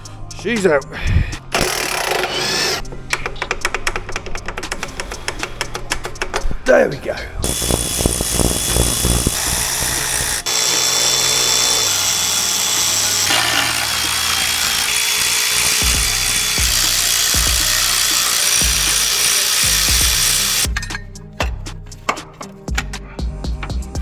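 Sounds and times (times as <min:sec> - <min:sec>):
power tool running: 0:01.5 - 0:02.8, 0:07.4 - 0:20.7
background music with beat: 0:15.8 - 0:24.0.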